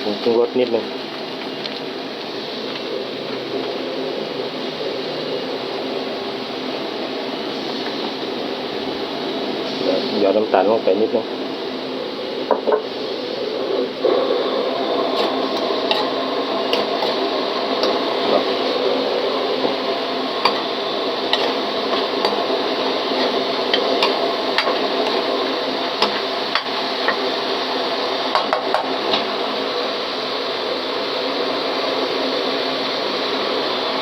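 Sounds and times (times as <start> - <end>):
meat sizzling in a pan: 0.0 - 34.0
metal spatula scraping pan: 15.1 - 18.5, 19.6 - 27.2.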